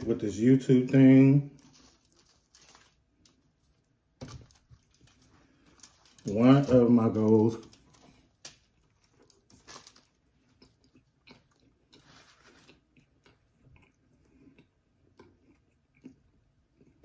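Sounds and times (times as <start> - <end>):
faint chewing: 7.2 - 17.0.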